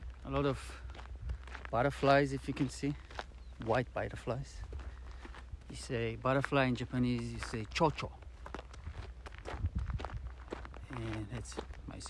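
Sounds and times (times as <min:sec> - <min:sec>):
light footsteps: 0:00.0 - 0:12.0.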